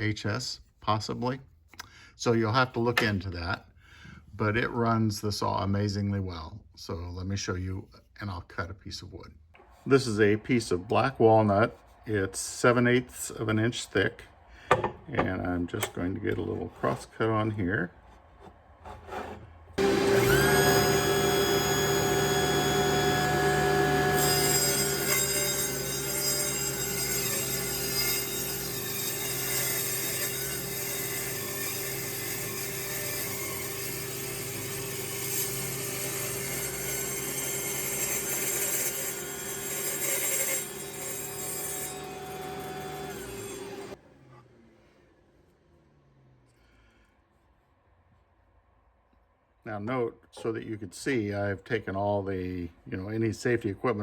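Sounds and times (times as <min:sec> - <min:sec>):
saw blade cutting wood: 0:18.3 - 0:44.0
table saw motor whine: 0:19.8 - 0:44.0.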